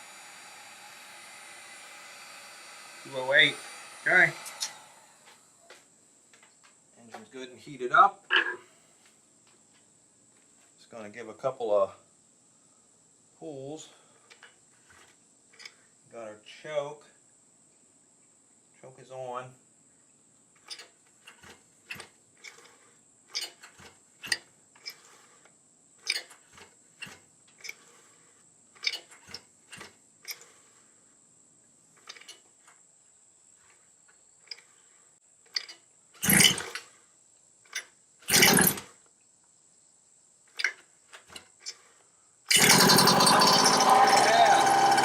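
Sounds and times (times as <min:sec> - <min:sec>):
engine pull starter pulls: 0:03.0 - 0:05.4, 0:20.6 - 0:31.0, 0:31.9 - 0:32.8, 0:34.4 - 0:37.0, 0:37.7 - 0:39.0, 0:40.5 - 0:45.0.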